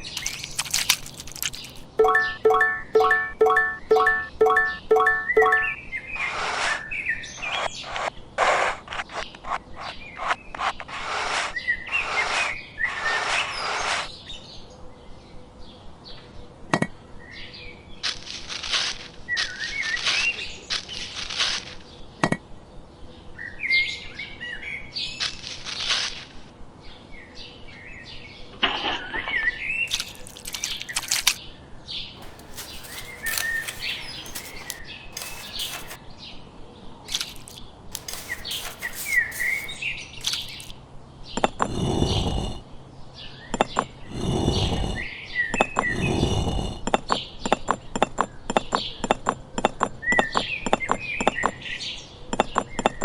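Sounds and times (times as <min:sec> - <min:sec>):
small birds chirping: 0:00.0 - 0:02.4, 0:32.2 - 0:36.0, 0:37.1 - 0:40.7
scraping noise: 0:32.2 - 0:36.0, 0:37.1 - 0:40.7
sharp clicks: 0:32.2 - 0:36.0, 0:37.1 - 0:40.7.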